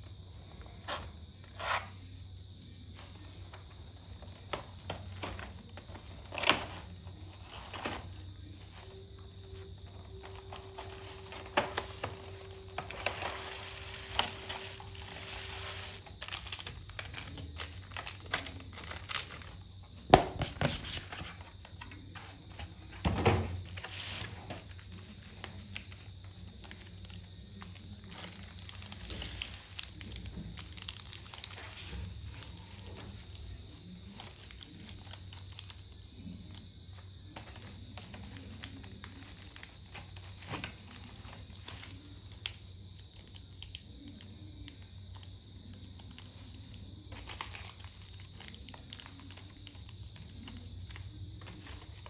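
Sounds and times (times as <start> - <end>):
plastic packaging crinkling and tearing: 2.9 - 36.6, 37.3 - 52.0.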